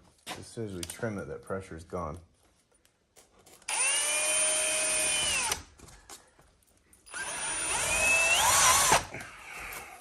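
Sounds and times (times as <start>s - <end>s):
power drill driving screw: 3.6s - 5.7s, 7.1s - 9.1s.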